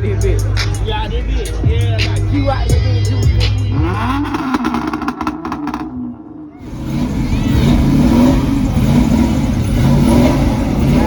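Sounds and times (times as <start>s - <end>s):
music with a beat: 0.0s - 5.9s
car engine revving loudly: 3.4s - 11.0s.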